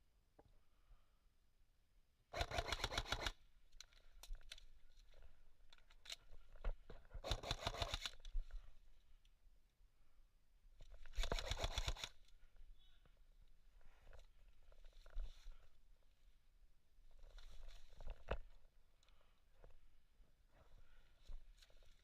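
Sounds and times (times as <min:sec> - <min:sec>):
airsoft gun full-auto bursts: 0:02.3 - 0:03.4, 0:07.2 - 0:08.2, 0:11.1 - 0:12.2.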